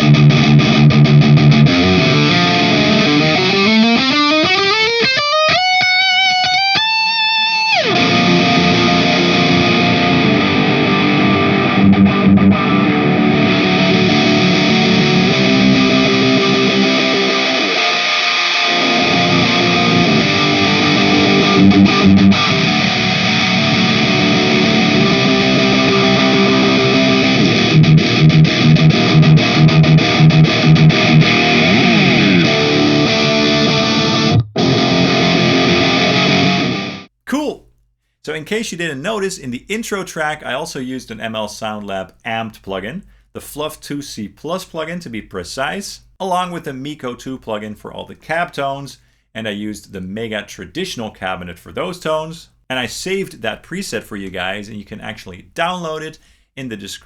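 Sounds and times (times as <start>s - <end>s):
distorted electric guitar: 0.0s - 37.1s.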